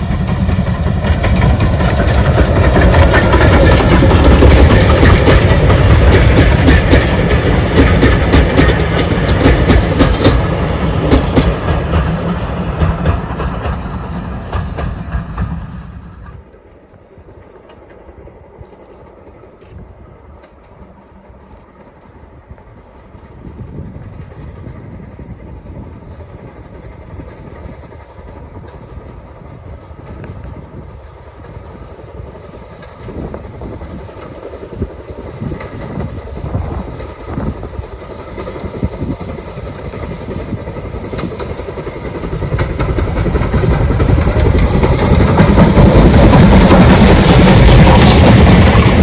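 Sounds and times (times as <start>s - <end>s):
wheels clicking over rails: 0.0s - 16.5s, 33.9s - 49.0s
train approaching: 0.0s - 49.0s.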